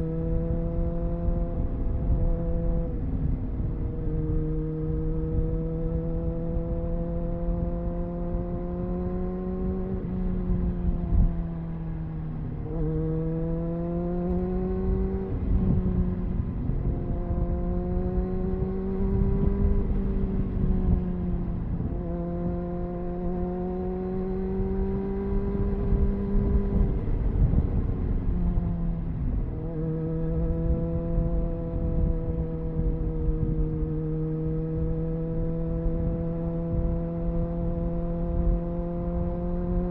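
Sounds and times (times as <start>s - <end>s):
motorcycle engine running: 3.7s - 39.9s
wind rush: 13.6s - 39.9s.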